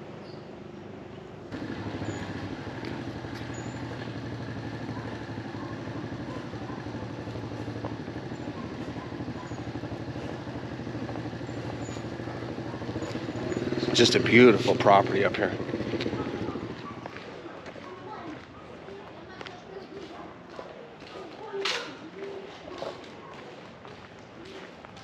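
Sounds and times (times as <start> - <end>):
small engine humming: 1.5 - 17.1
faint high chirps: 1.8 - 6.0.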